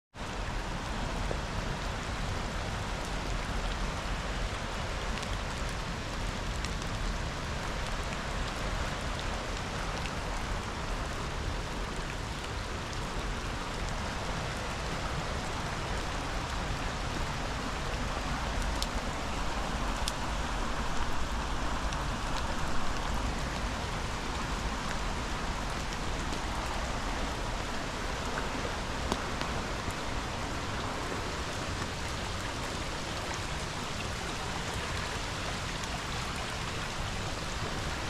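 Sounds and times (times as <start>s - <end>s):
rainfall: 0.1s - 38.0s
waterfall rushing: 9.0s - 38.0s
raindrop ticks: 16.5s - 30.8s.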